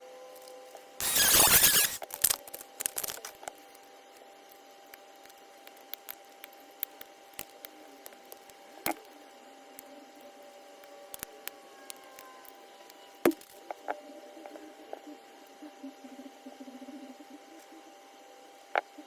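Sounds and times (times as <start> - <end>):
packaging tearing and crinkling: 1.0 - 3.7.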